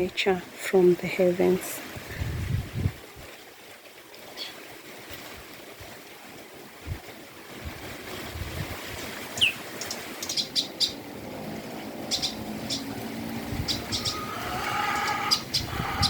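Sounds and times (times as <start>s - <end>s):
birds chirping: 9.4s - 11.0s, 12.0s - 16.0s.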